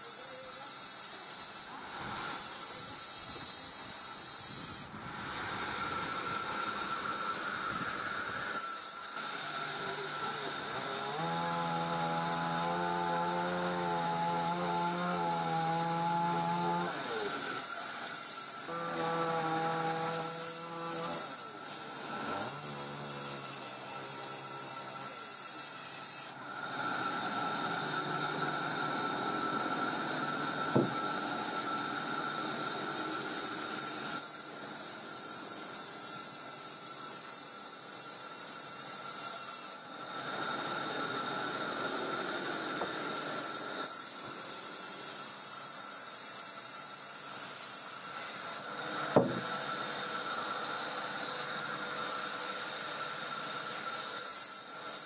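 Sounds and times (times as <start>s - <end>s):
sawmill saw cutting timber: 0.0s - 55.0s
sharp knocks: 30.7s - 31.0s, 49.2s - 49.5s.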